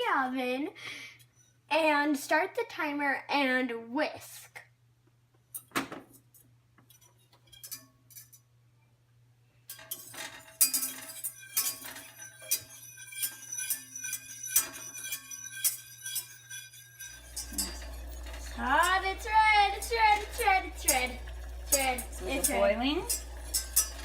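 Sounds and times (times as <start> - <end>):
metal whisk clinking in pot: 6.9 - 8.4, 9.7 - 24.0.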